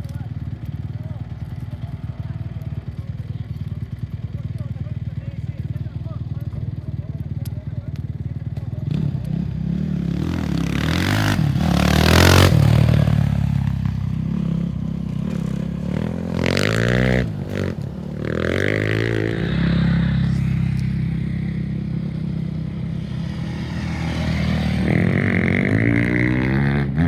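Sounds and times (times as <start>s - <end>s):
steady engine hum: 0.0s - 27.0s
race vehicles passing: 8.8s - 27.0s.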